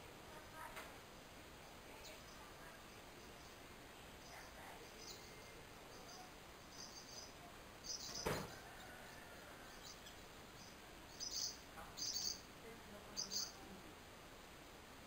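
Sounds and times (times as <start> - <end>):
high bird chirps: 4.2 - 8.7, 9.6 - 12.5, 13.1 - 13.6.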